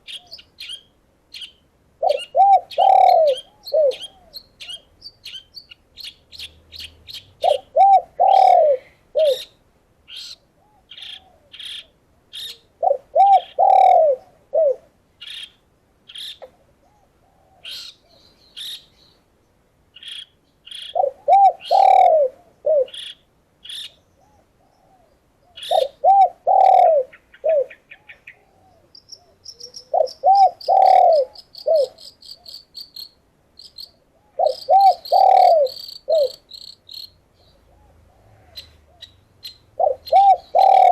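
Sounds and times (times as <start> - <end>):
doves cooing: 2.0 - 4.8, 7.4 - 9.5, 10.6 - 14.9, 16.8 - 18.2, 20.8 - 23.2, 24.2 - 32.5, 34.1 - 36.5, 37.5 - 40.9.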